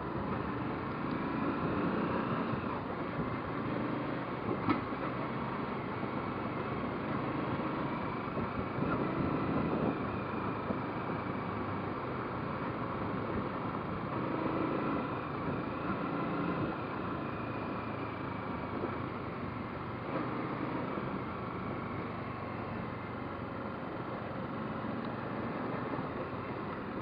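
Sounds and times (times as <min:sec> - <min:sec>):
road noise: 0:00.0 - 0:27.0
wind noise: 0:08.3 - 0:10.8.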